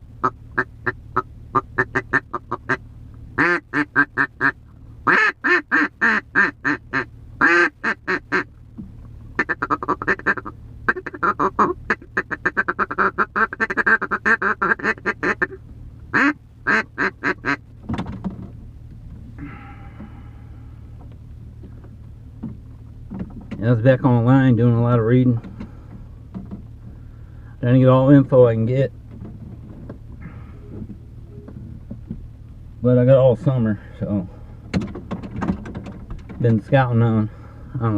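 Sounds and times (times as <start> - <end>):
low hum: 0.0 - 37.9
duck call quacks: 0.2 - 2.8, 3.4 - 8.5, 9.4 - 17.6.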